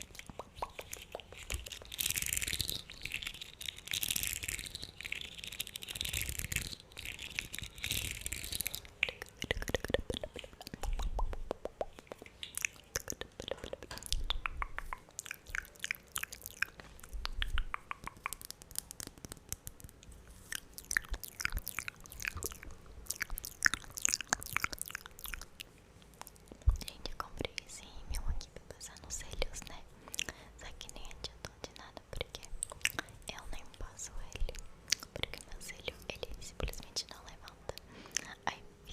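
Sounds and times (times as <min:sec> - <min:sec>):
wet mouth clicks and smacks: 0:00.0 - 0:27.6, 0:28.2 - 0:38.3.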